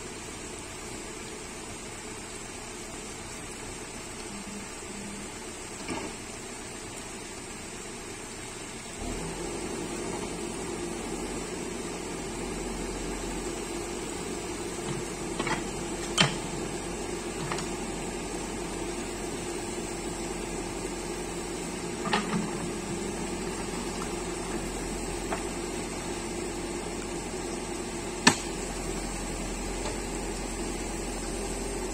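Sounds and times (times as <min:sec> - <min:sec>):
backhoe diesel engine running: 0:09.2 - 0:31.9.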